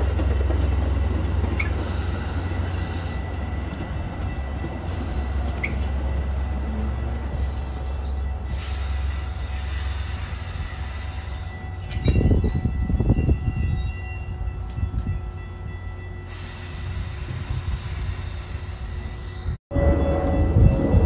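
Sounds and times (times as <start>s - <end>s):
train cars rumbling: 0.0s - 21.0s
high squeal tones: 4.9s - 6.0s
hiss: 16.3s - 19.5s.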